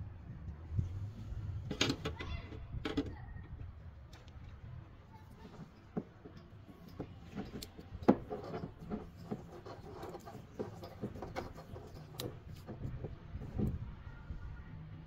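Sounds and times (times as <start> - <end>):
tape rubbing and clicking: 5.3 - 13.8.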